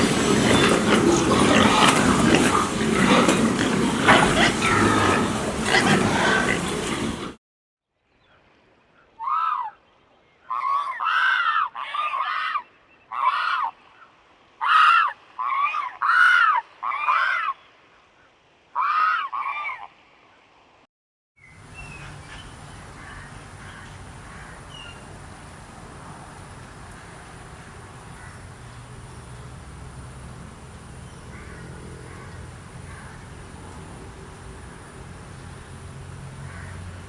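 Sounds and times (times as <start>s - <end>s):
crane honking calls: 0.0s - 7.4s.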